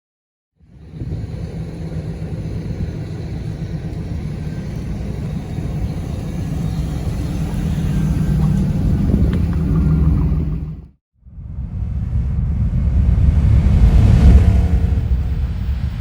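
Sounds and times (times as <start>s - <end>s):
car engine idling: 0.8s - 10.9s.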